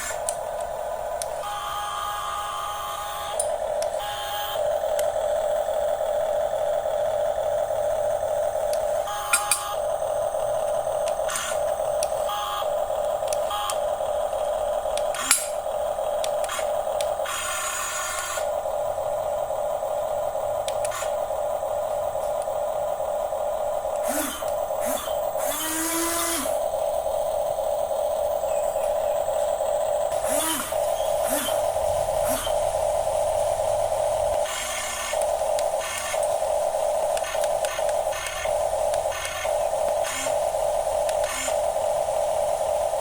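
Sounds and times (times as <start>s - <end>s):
sharp clicks: 0.0s - 1.4s, 3.3s - 4.1s, 4.8s - 5.2s, 8.6s - 13.9s, 14.9s - 18.5s, 20.6s - 21.2s, 23.9s - 26.6s, 34.3s - 41.7s
electric motors whining: 0.0s - 43.0s.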